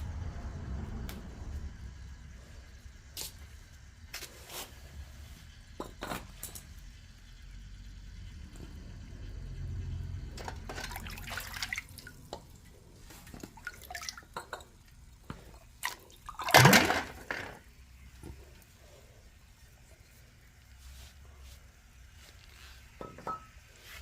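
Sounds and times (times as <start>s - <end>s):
water dripping and splashing: 10.7s - 17.3s.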